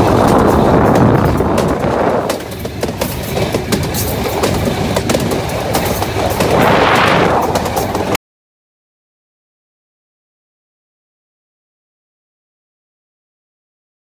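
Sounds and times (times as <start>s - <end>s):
train rumble and rushing: 0.0s - 8.2s
train wheels clattering over rails: 0.0s - 8.2s.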